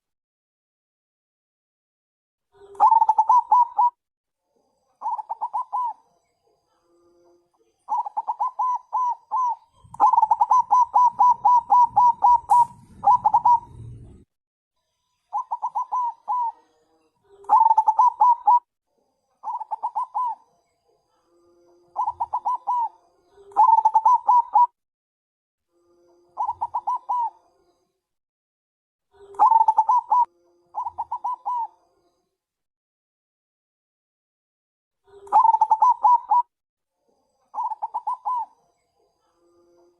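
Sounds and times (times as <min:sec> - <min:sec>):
dove cooing: 0:02.6 - 0:04.0, 0:05.0 - 0:06.0, 0:07.9 - 0:14.3, 0:15.3 - 0:16.6, 0:17.4 - 0:18.7, 0:19.4 - 0:20.4, 0:22.0 - 0:24.8, 0:26.4 - 0:27.4, 0:29.2 - 0:31.8, 0:35.1 - 0:36.5, 0:37.6 - 0:38.6.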